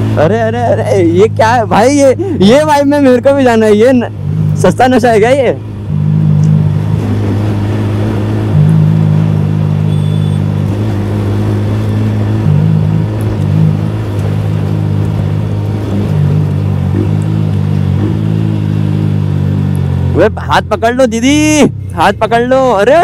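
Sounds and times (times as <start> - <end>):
motorcycle engine running steadily: 7.8 - 23.0.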